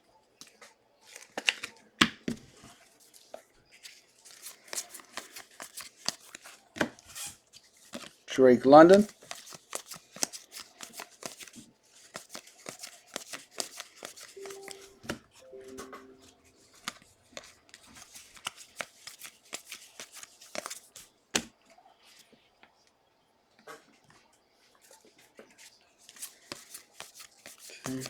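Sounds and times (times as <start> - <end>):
trading cards being flipped: 9.2 - 20.8.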